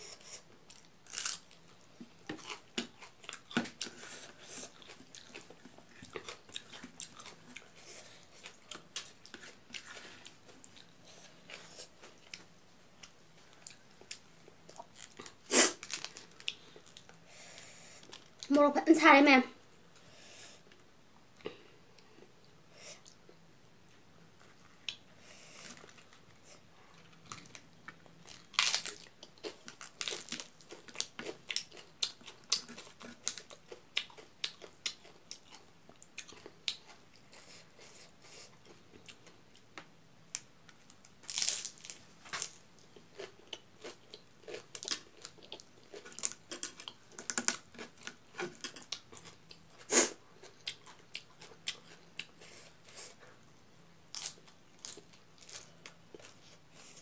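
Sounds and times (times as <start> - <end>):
crunching raw cabbage: 0.7 - 7.6, 13.5 - 17.1, 28.2 - 35.6, 41.2 - 52.2, 54.1 - 57.0.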